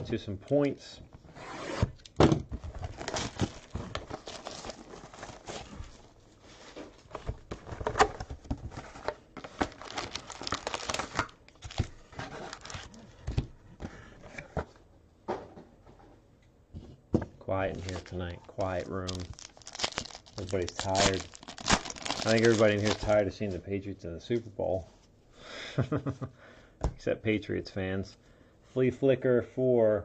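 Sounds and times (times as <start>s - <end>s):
foil wrapper crinkling and tearing: 2.8s - 5.8s, 9.4s - 13.0s, 17.7s - 23.2s
cards rustling and clicking: 17.7s - 23.2s.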